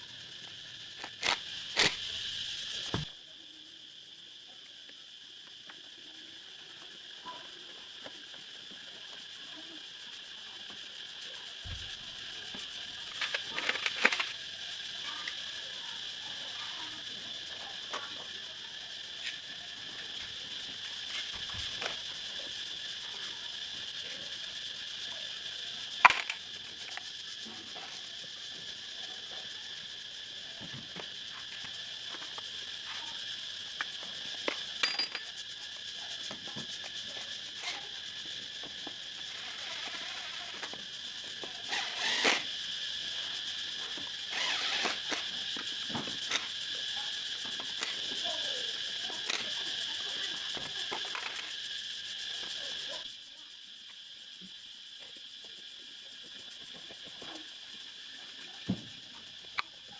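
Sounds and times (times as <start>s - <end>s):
metal tools clicking and clinking: 34.8s - 35.3s.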